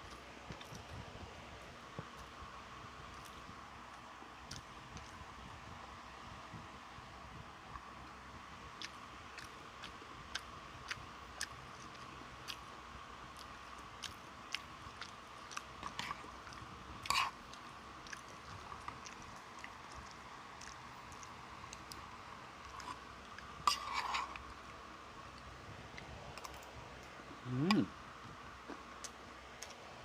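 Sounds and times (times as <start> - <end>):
person chewing crunchy food: 8.7 - 27.9.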